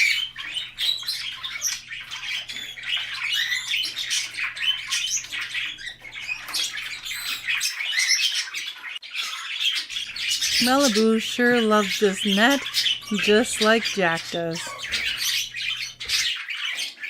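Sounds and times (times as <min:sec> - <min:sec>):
budgies chattering: 0:00.0 - 0:17.0.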